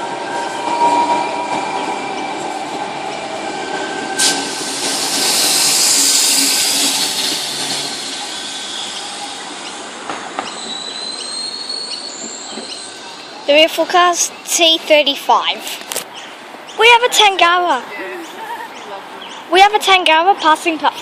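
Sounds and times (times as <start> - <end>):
train wheels on rail: 0.0 - 17.9
thin squealing tones: 10.4 - 13.5.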